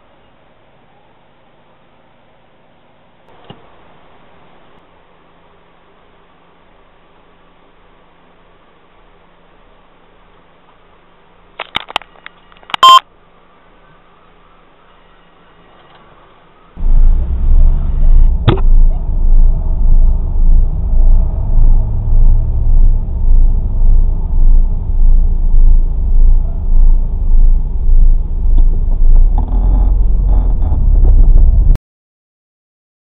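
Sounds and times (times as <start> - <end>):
short higher pitched sound: 16.8 - 31.7
car engine idling: 16.8 - 31.8.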